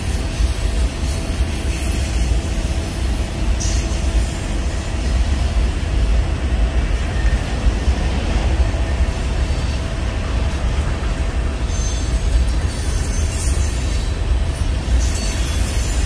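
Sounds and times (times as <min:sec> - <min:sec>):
freight train wheels rumbling: 0:00.0 - 0:16.0
high wheel squeal: 0:11.6 - 0:16.0.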